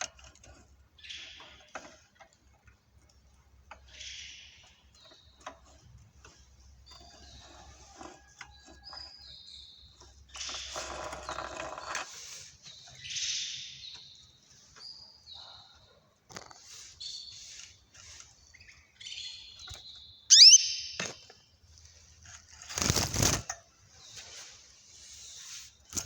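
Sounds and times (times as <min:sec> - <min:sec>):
small birds chirping: 0:00.8 - 0:02.2, 0:03.0 - 0:21.6
loud rising bird call: 0:20.3 - 0:20.9
wings fluttering: 0:22.6 - 0:23.5.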